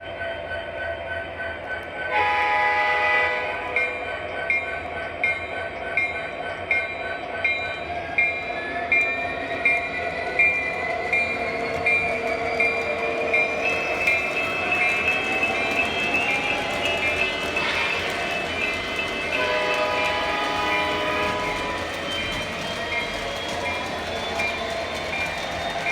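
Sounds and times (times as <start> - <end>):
train horn: 2.1 - 4.1, 19.3 - 22.0.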